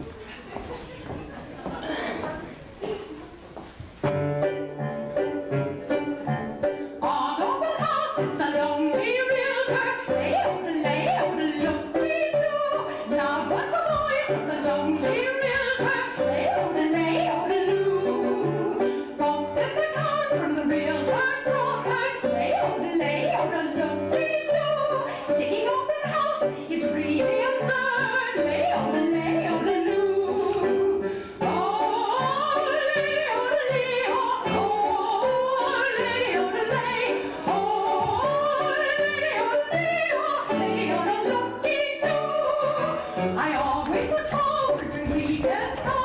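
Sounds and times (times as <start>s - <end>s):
instrumental accompaniment: 0.0s - 46.0s
operatic singing: 31.4s - 46.0s.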